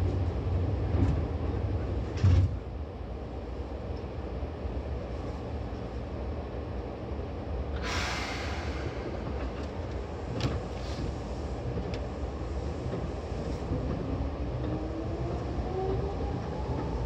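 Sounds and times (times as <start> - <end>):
train interior low rumble: 0.0 - 17.0
burst of hiss: 7.8 - 9.1.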